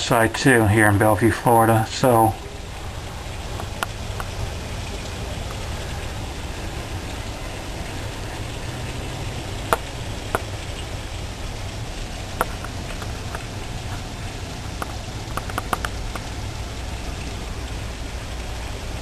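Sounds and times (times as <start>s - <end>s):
heavy rain falling: 0.0s - 19.0s
sharp drip taps: 2.4s - 6.2s, 7.7s - 11.1s, 12.1s - 17.5s.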